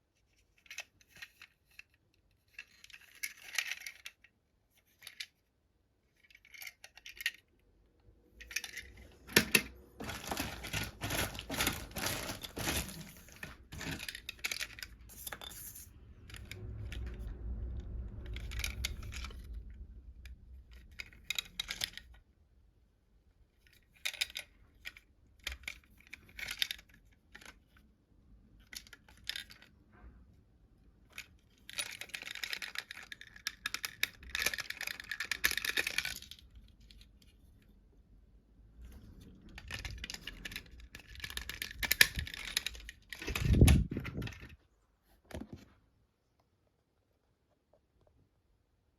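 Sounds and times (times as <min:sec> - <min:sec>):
plastic toy parts clicking and rattling: 0:00.1 - 0:07.6, 0:08.3 - 0:17.1, 0:20.7 - 0:22.2, 0:23.6 - 0:27.8, 0:28.6 - 0:29.8, 0:31.0 - 0:37.5, 0:38.8 - 0:44.6
packaging rustling: 0:08.6 - 0:15.8.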